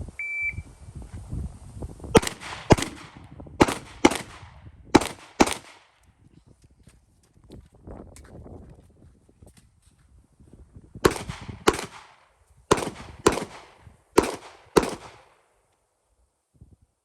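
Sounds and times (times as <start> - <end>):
pistol shots with echo: 2.2 - 5.9, 11.1 - 15.4.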